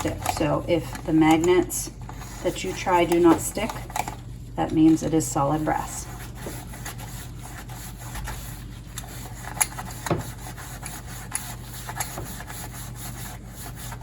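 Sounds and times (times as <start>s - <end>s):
steady low hum: 0.0s - 14.0s
steel wool scrubbing metal: 4.6s - 14.0s.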